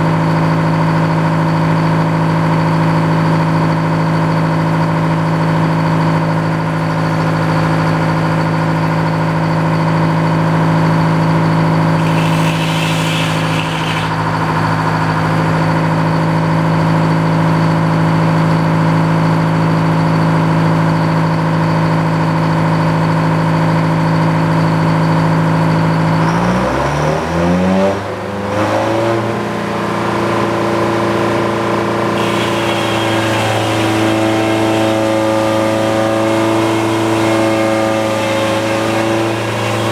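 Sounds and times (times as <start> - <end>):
gas engine running: 11.8 - 16.2, 30.0 - 39.9.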